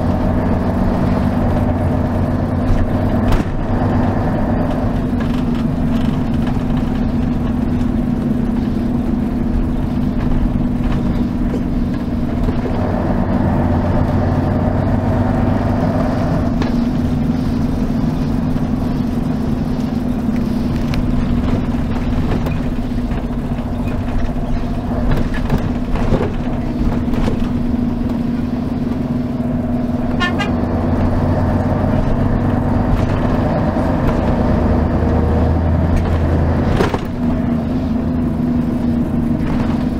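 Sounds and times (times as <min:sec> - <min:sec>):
diesel bus engine running: 0:00.0 - 0:39.9.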